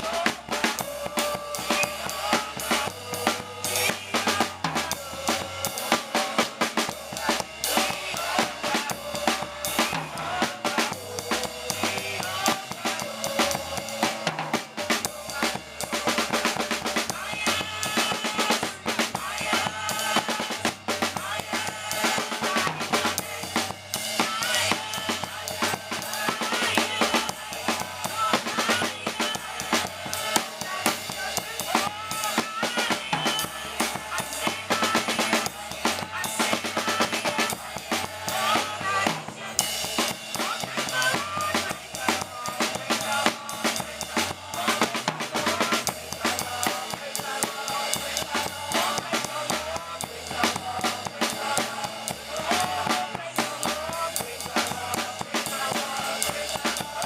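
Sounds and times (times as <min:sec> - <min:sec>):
bass line: 0:00.0 - 0:57.0
drum kit: 0:00.0 - 0:57.0
gospel band playing: 0:00.0 - 0:57.0.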